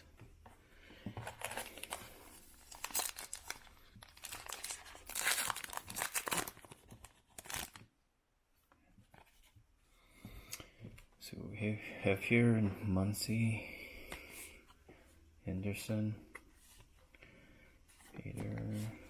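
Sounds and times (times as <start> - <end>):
foil wrapper tearing and crinkling: 2.6 - 7.8.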